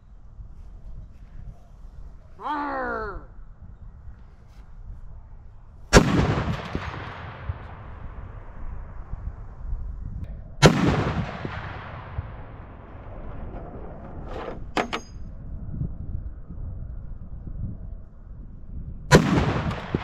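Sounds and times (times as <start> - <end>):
rifle shots with rolling echo: 5.9 - 9.6, 10.6 - 14.3, 19.1 - 20.0.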